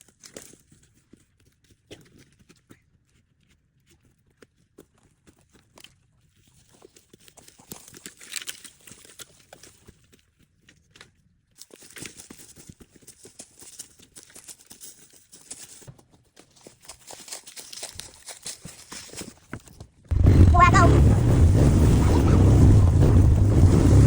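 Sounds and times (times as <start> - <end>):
wood fire crackling and popping: 20.1 - 24.0.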